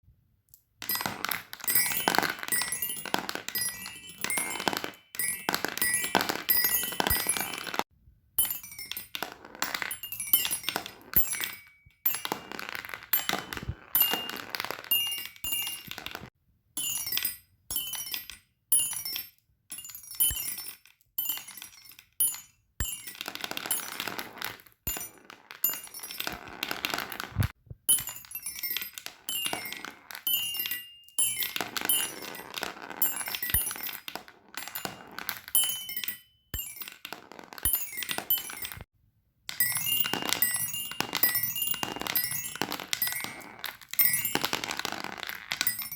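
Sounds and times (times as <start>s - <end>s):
fidget toy pieces rattling: 0.8s - 7.8s, 8.4s - 16.3s, 22.8s - 36.0s, 39.6s - 45.9s.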